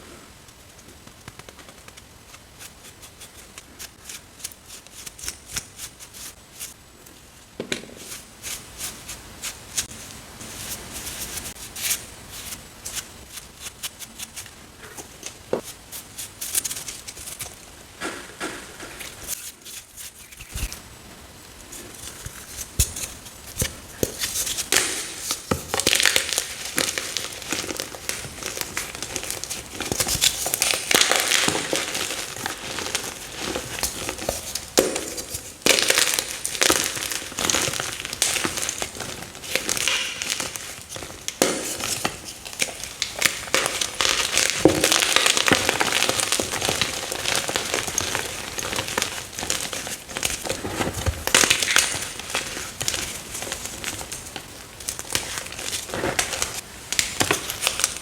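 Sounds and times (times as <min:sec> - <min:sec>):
chalk blocks crunching: 0:21.6 - 0:58.0.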